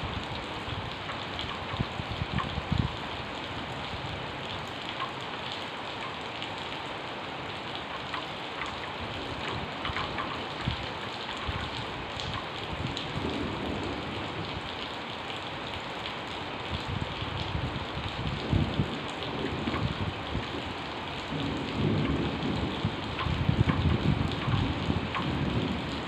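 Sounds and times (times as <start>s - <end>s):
heavy rain falling: 0.0s - 26.0s
raindrop ticks: 0.2s - 6.8s, 7.5s - 26.0s.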